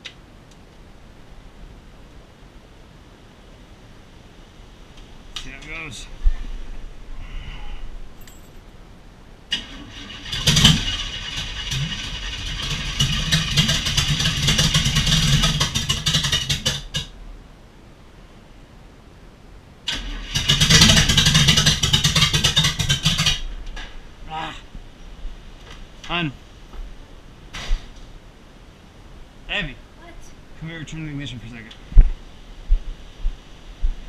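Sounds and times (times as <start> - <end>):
engine cranking on starter: 9.5 - 17.1, 19.9 - 23.4.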